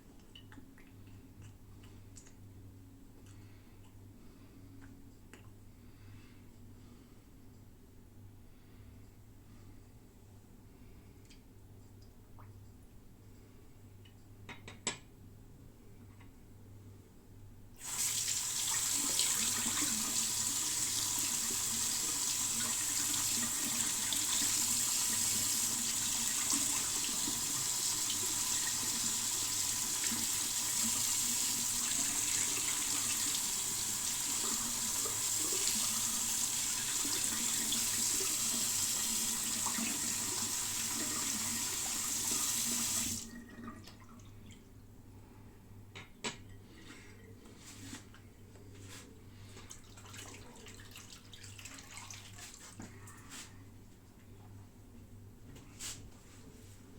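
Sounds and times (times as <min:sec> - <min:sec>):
tap water running into sink: 0:17.8 - 0:44.0.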